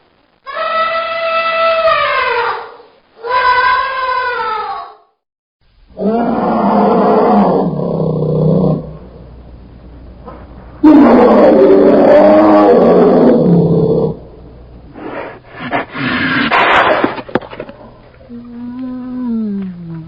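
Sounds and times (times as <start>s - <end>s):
large animal roaring: 5.9s - 9.1s, 10.8s - 14.3s.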